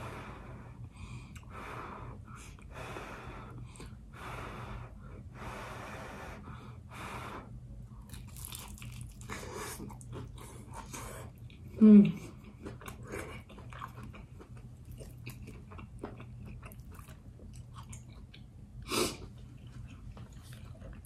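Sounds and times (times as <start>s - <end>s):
breaths: 0.0s - 7.6s
soft crunching chewing: 7.9s - 21.0s.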